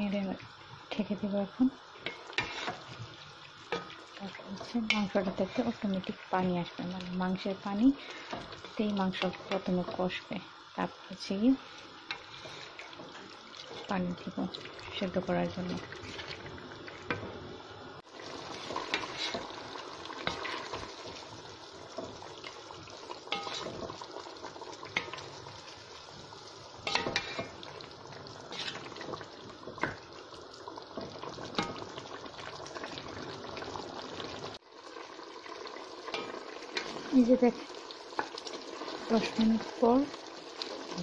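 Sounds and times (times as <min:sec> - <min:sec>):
meat hissing in a pot: 0:00.5 - 0:41.0
spoon stirring against a pot: 0:02.0 - 0:03.0, 0:18.5 - 0:21.3, 0:23.3 - 0:24.0, 0:26.8 - 0:27.6, 0:28.5 - 0:29.2.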